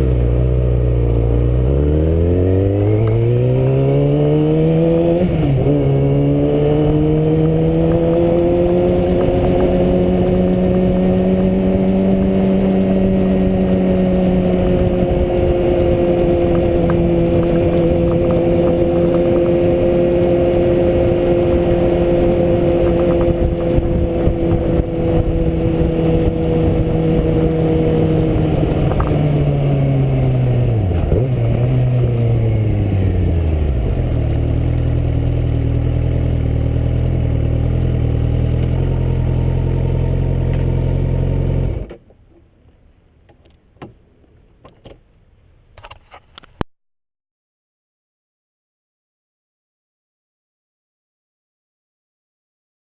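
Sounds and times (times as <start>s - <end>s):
wind rumble on microphone: 0.0s - 39.6s
motorcycle engine revving: 0.0s - 42.0s.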